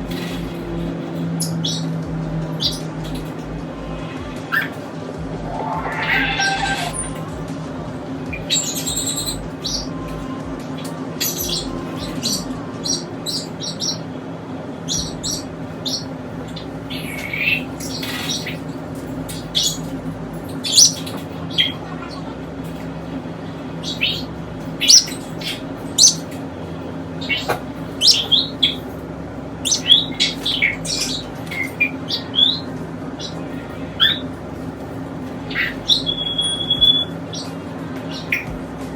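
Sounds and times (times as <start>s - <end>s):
parrots chirping: 0.0s - 3.4s, 4.0s - 7.5s, 8.2s - 10.4s, 11.2s - 14.1s, 14.8s - 38.9s
steady low hum: 0.0s - 38.9s.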